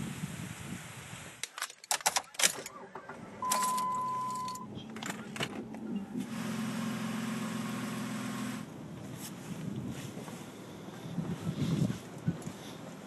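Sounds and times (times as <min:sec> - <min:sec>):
car engine starting and idling: 0:02.3 - 0:10.8
car warning tone: 0:02.7 - 0:04.8.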